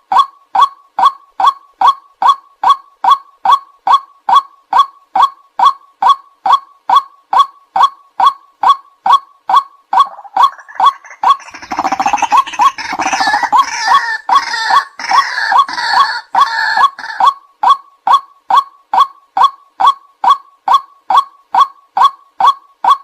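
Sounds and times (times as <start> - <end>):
chorus of harsh bird calls: 10.0 - 17.3
waterhen calling: 10.0 - 17.4.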